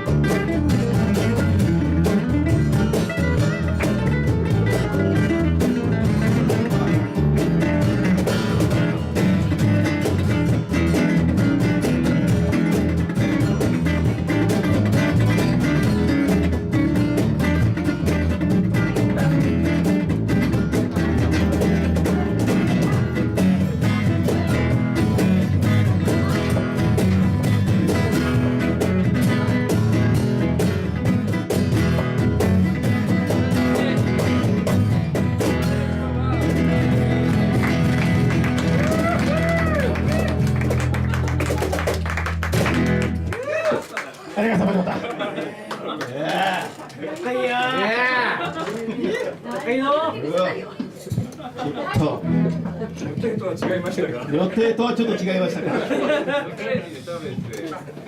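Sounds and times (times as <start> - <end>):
drums: 0.0 - 45.3, 50.7 - 54.3
live band playing: 0.0 - 45.3, 50.8 - 55.3
guitar: 0.0 - 58.0.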